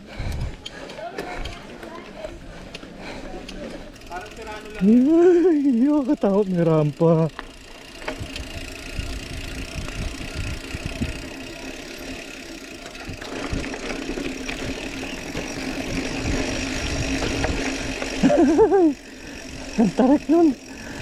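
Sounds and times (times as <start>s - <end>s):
bike knocks and rattles: 7.2s - 19.0s.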